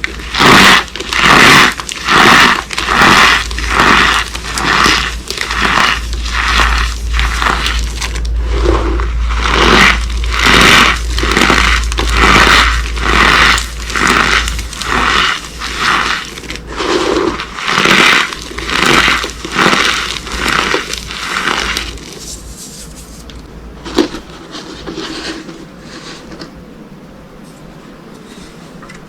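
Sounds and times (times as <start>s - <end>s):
soap crumbling: 0.0s - 25.5s
soap boxes crunching: 0.0s - 25.6s.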